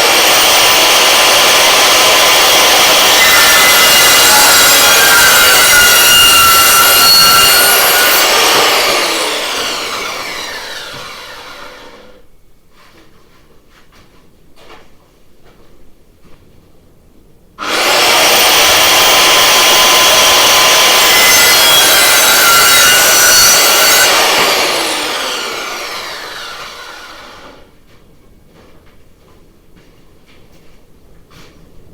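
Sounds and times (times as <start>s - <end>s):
electric power saw cutting wood: 0.0s - 12.2s, 17.6s - 27.7s
saw blade whine winding down: 0.0s - 12.2s, 17.6s - 27.7s.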